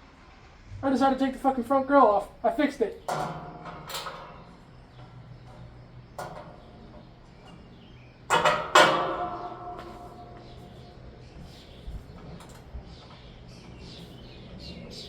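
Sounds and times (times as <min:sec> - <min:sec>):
metal parts clanking: 0:03.0 - 0:10.9.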